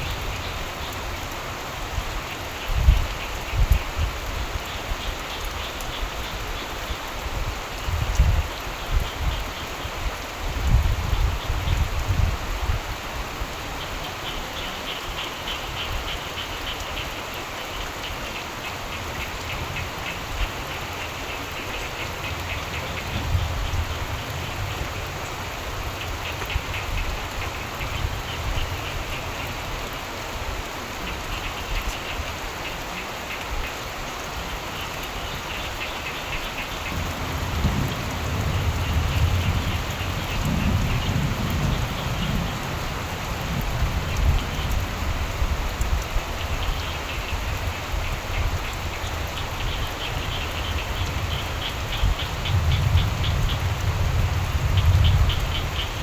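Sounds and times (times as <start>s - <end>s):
rain falling: 0.0s - 56.0s
frogs calling: 13.5s - 30.1s, 31.0s - 56.0s
thunder rumble: 36.8s - 45.6s.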